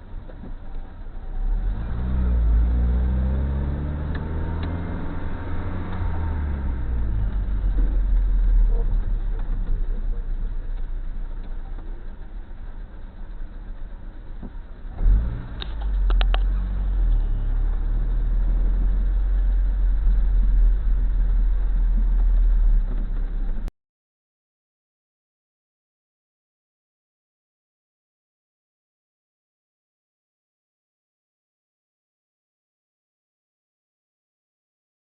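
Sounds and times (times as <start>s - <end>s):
car driving rumble: 0.0s - 23.7s.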